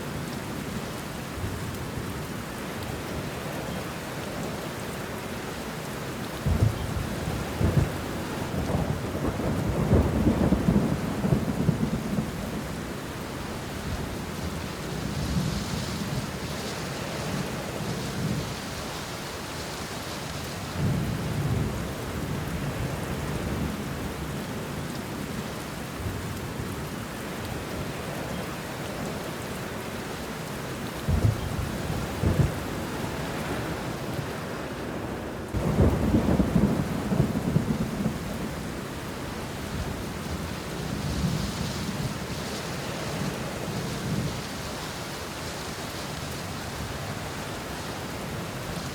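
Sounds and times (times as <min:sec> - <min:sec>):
rain on leaves: 0:00.0 - 0:48.9
thunder rumbling: 0:06.4 - 0:13.0, 0:31.1 - 0:34.4, 0:35.0 - 0:45.1.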